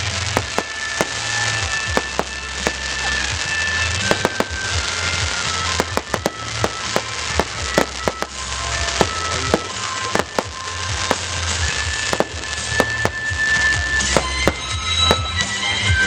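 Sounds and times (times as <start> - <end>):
fireworks bangs and crackles: 0.0 - 16.0
music: 0.0 - 16.0.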